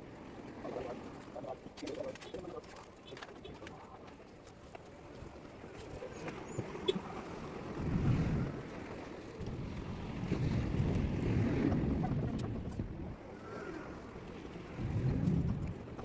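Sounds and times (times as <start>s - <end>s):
wind buffeting microphone: 5.0s - 16.0s.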